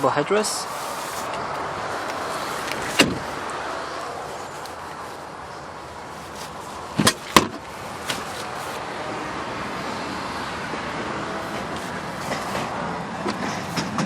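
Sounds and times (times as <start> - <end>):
seat mechanism clicks: 1.2 - 3.6, 6.3 - 8.8.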